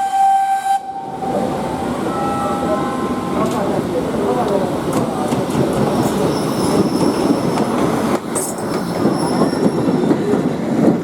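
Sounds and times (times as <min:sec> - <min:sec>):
train carriages rumbling on rails: 0:01.0 - 0:11.0
high metallic wheel squeals: 0:06.0 - 0:07.7, 0:08.4 - 0:10.1.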